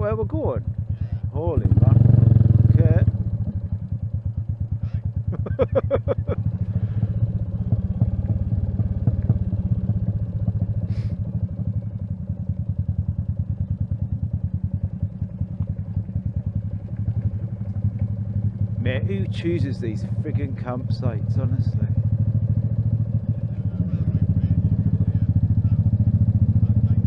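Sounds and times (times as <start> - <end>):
motorcycle engine thudding: 2.6 - 18.9.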